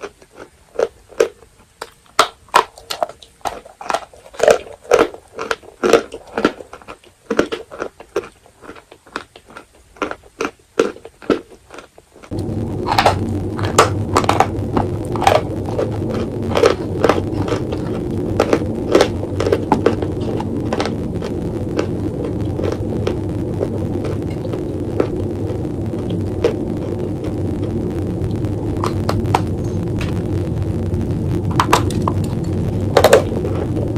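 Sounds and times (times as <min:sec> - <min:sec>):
crunching and chewing chalk: 0:00.0 - 0:30.2
steady low hum: 0:12.2 - 0:33.9.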